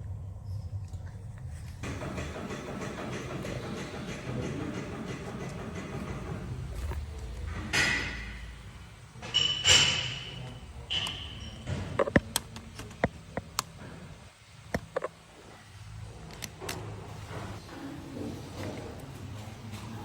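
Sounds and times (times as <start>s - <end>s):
high metallic ping: 9.2s - 11.7s
metal tools clinking and knocking: 9.2s - 12.1s.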